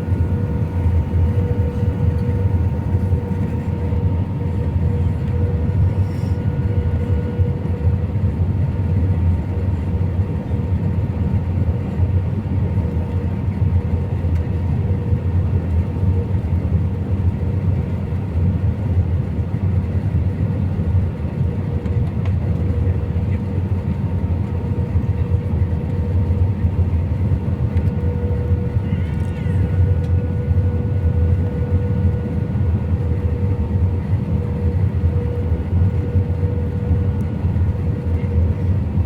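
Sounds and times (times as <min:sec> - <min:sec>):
engine hum tone: 0:00.0 - 0:07.9, 0:27.7 - 0:38.8
airliner cabin rumble: 0:00.0 - 0:39.0.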